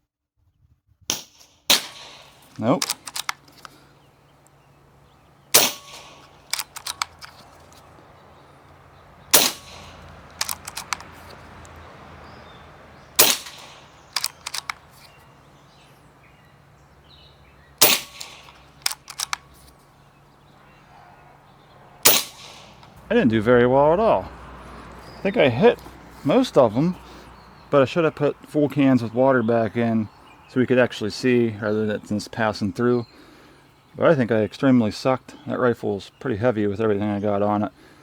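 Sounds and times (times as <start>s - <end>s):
air rifle shots: 1.1s - 20.2s, 22.0s - 23.0s
quick run of small clicks: 2.3s - 4.6s, 5.6s - 8.0s, 9.3s - 11.9s, 13.1s - 15.3s, 17.8s - 19.8s.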